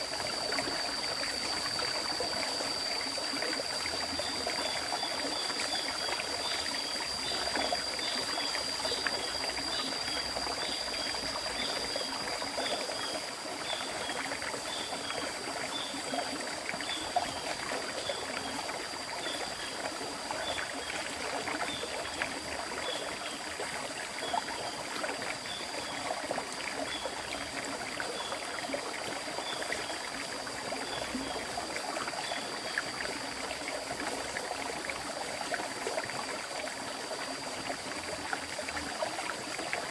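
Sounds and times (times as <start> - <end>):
faint high whine: 0.0 - 13.8
river water flowing: 0.0 - 39.9.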